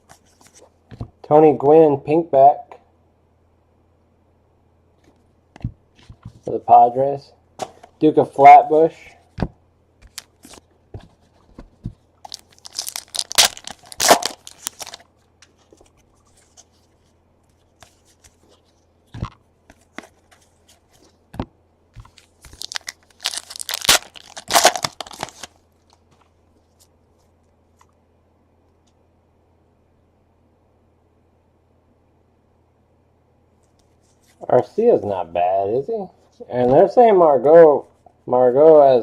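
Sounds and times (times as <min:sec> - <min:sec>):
foil wrapper tearing: 0:12.3 - 0:15.0, 0:22.4 - 0:26.0.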